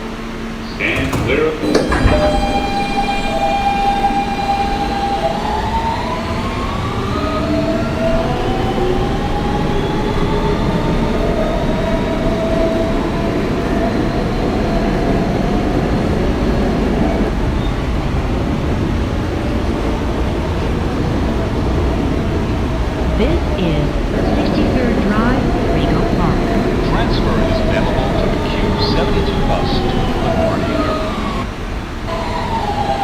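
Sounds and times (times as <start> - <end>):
subway car running rumble: 0.0 - 33.0
traction motors whining: 0.0 - 33.0.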